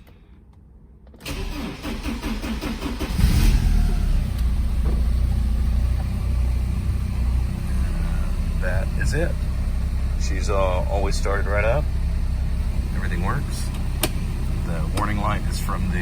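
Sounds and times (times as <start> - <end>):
starter motor cranking: 1.2 - 4.9
car engine revving and idling: 1.4 - 16.0.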